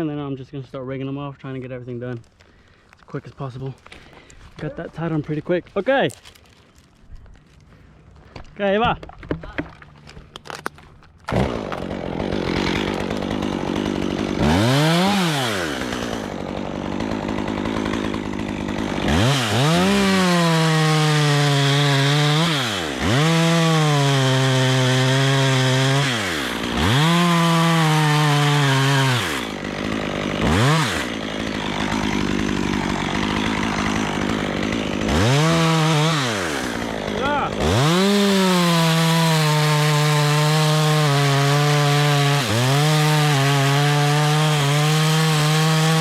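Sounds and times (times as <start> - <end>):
chainsaw cutting wood: 3.4 - 46.0
chainsaw idling: 11.3 - 46.0
chainsaw starting up: 11.3 - 46.0.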